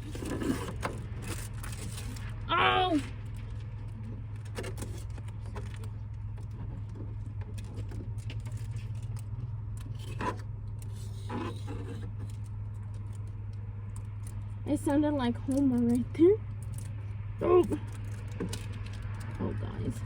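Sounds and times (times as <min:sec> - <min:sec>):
hand tool scraping on glass: 0:11.0 - 0:12.3.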